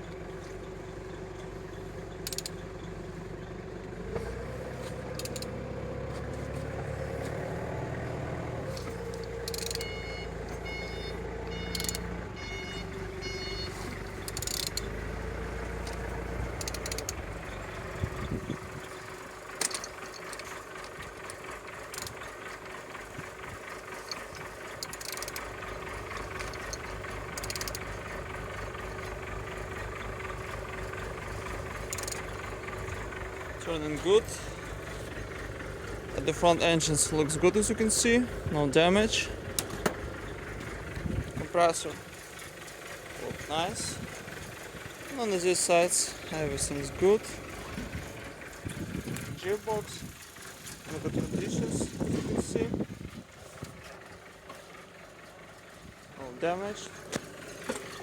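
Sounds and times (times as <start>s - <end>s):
engine crank clicks and rattles: 0.0s - 58.0s
low engine rumble: 0.0s - 58.0s
high beeps: 9.7s - 13.9s.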